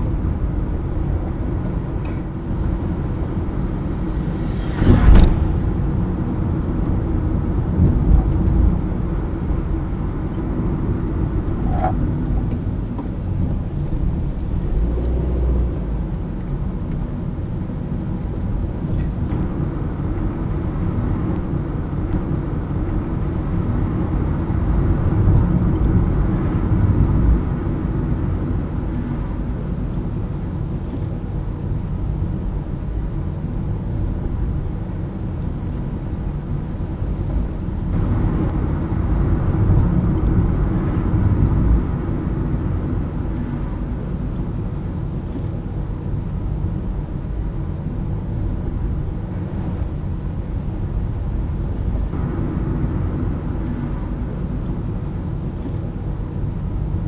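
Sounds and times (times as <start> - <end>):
car engine and tyre rumble: 0.0 - 57.0
sharp thump: 4.0 - 6.4.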